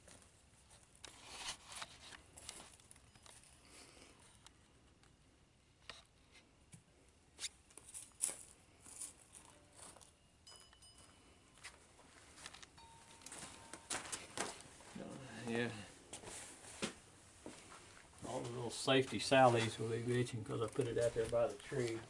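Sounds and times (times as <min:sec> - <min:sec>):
faint clicks and rustles: 0:00.0 - 0:15.0.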